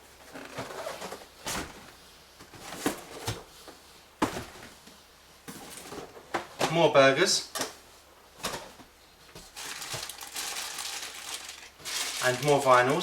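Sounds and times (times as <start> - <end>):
cardboard boxes knocking and rustling: 0.2 - 3.5, 4.2 - 6.8.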